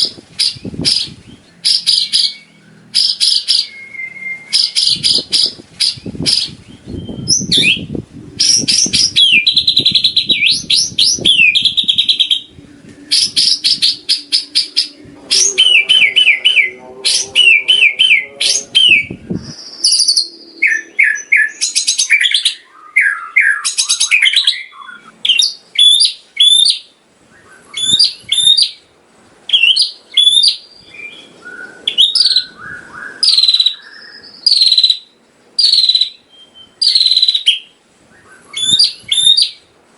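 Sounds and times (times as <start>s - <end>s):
songbird singing varied song: 0.0s - 28.9s, 29.5s - 39.7s
low rumble: 5.2s - 21.0s.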